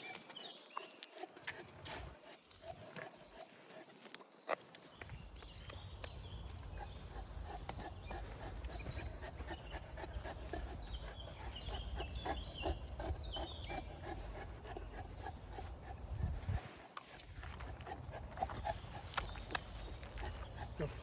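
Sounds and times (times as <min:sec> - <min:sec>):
dog panting: 0:00.2 - 0:04.6, 0:06.4 - 0:21.0
wind rumbling on microphone: 0:04.9 - 0:21.0.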